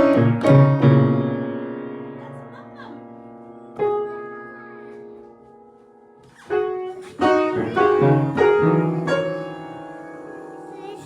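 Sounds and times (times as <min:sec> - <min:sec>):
keyboard notes: 0:07.0 - 0:11.0.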